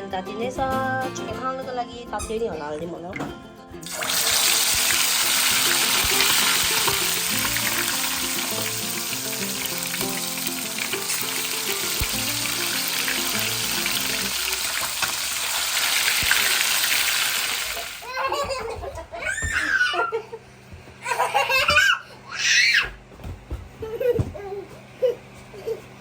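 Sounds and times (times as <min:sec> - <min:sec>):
chicken wings sizzling in oil: 0:03.8 - 0:18.0
baby laughing and squealing: 0:16.2 - 0:20.4, 0:21.0 - 0:22.9, 0:23.8 - 0:25.9.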